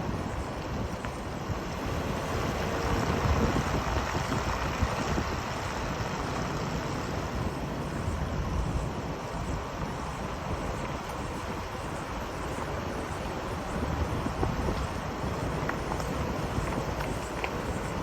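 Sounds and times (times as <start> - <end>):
vehicle road and wind noise: 0.0 - 18.0.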